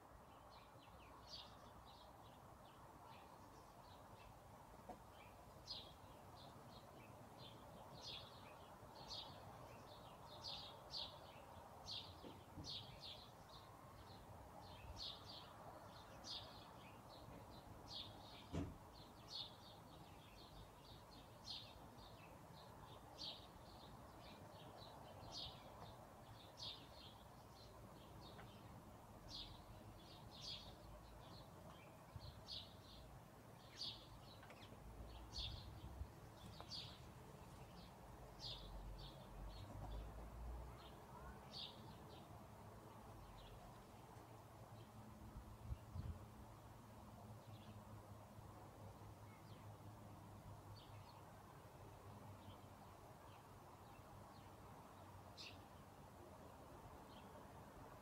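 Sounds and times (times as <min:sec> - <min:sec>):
faint steady hiss: 0:00.0 - 0:58.0
birds chirping: 0:00.3 - 0:45.0.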